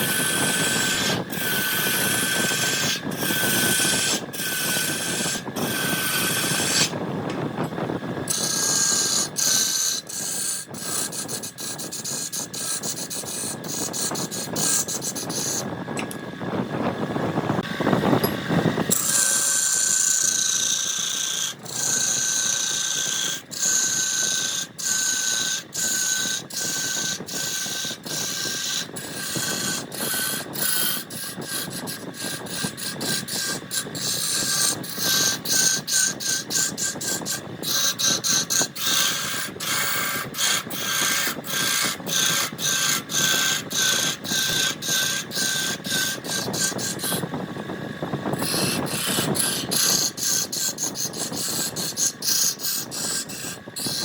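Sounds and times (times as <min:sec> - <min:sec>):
turning tool cutting wood: 0:00.0 - 0:16.2, 0:17.6 - 0:54.0
wood lathe whining: 0:00.0 - 0:54.0.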